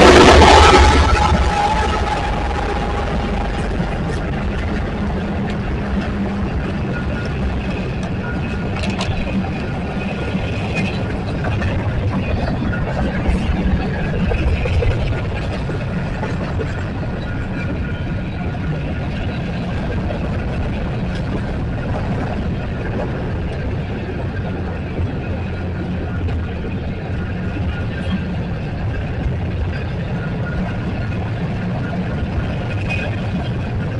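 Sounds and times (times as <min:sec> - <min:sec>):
diesel locomotive drone: 0:00.0 - 0:33.9
rumble of rolling train cars: 0:00.0 - 0:33.9.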